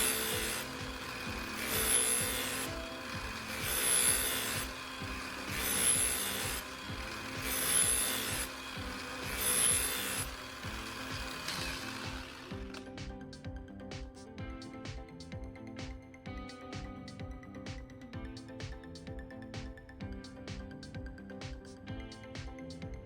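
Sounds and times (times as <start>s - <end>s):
knife rasping on polishing disc: 0.0s - 10.3s.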